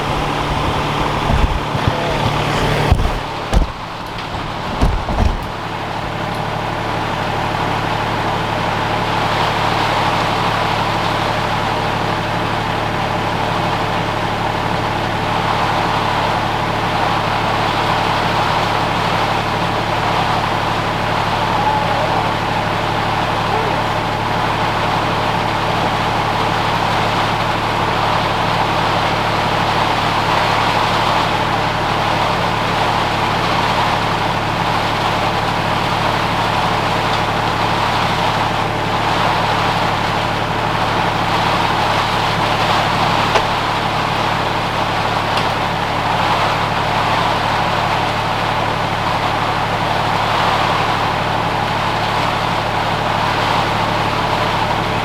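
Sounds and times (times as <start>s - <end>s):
air compressor running: 0.0s - 6.4s.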